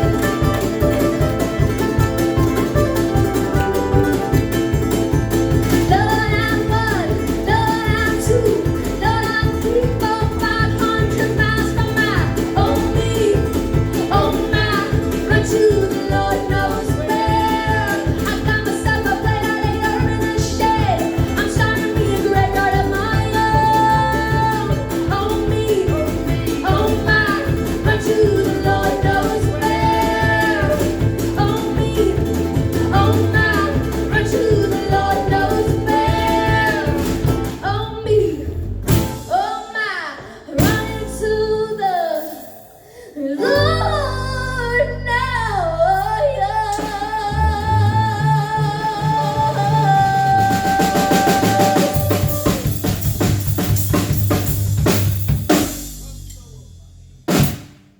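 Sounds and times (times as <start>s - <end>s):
ukulele: 0.0s - 56.6s
person singing: 5.7s - 38.4s, 43.1s - 53.0s
percussion beat with cymbal: 50.5s - 57.8s.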